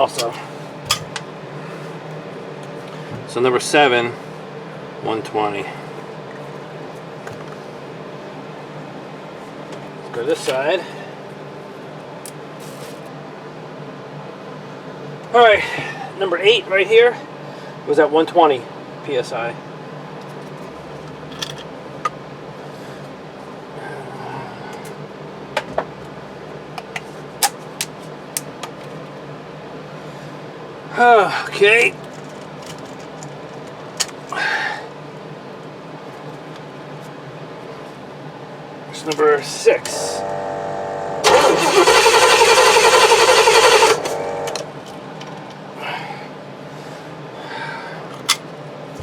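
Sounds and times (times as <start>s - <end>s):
steady low hum: 39.8s - 41.3s
starter whine: 39.9s - 44.7s
engine cranking pulsing: 40.2s - 44.6s.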